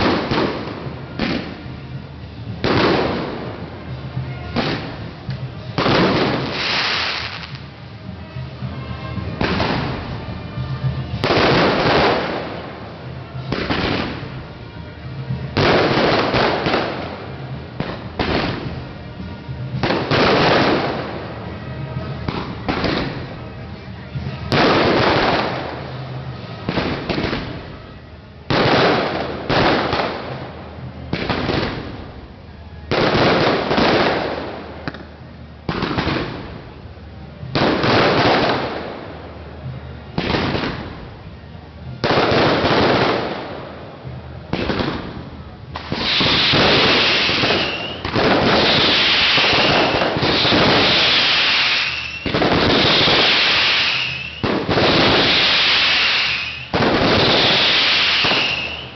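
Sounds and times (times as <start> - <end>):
fireworks bursts: 0.0 - 36.8, 37.4 - 58.9
fireworks crackle: 0.0 - 58.9
falling whistle: 51.6 - 52.3, 53.8 - 54.4, 55.9 - 56.7, 58.1 - 58.9.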